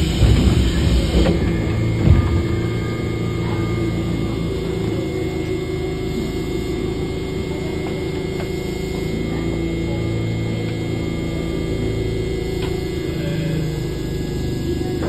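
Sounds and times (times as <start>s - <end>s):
mechanical clunks and knocks: 0.0s - 5.6s
train hum with hiss: 0.0s - 15.0s.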